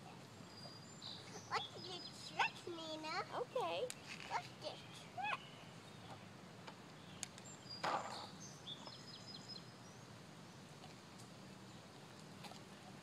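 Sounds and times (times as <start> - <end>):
small birds chirping faintly: 0.0 - 13.0.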